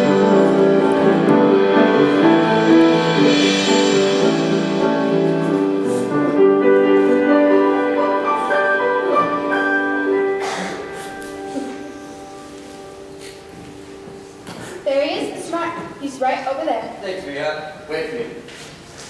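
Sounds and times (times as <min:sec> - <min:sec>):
slow piano chords and melody: 0:00.0 - 0:14.9.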